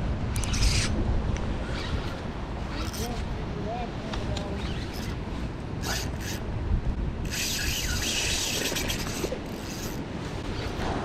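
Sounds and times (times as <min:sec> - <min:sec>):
low rumble of wind: 0:00.0 - 0:11.0
fishing reel ratcheting: 0:02.7 - 0:03.1, 0:04.7 - 0:05.2, 0:05.8 - 0:06.4, 0:07.2 - 0:10.8.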